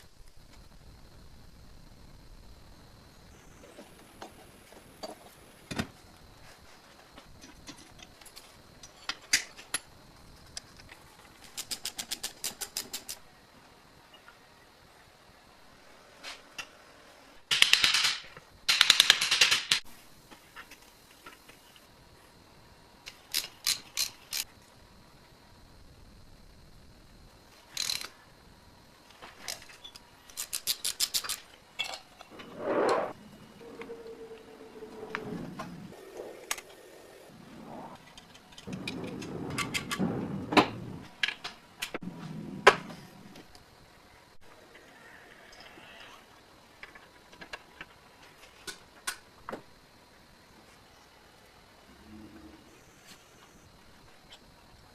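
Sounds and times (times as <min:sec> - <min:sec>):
short scrape: 0:32.3 - 0:35.9.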